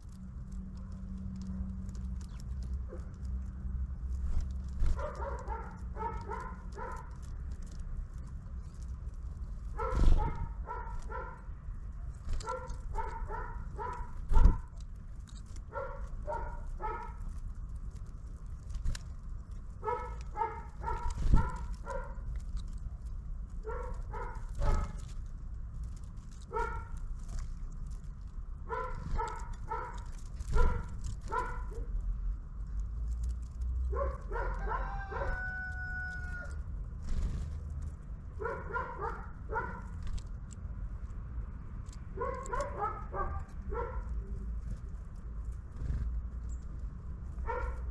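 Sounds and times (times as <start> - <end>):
dog barking: 4.9 - 7.2, 9.8 - 11.5, 12.4 - 14.7, 15.7 - 17.2, 19.8 - 22.2, 23.6 - 25.0, 26.5 - 27.0, 28.7 - 31.9, 33.9 - 36.0, 38.4 - 39.9, 42.2 - 44.2, 47.4 - 47.9.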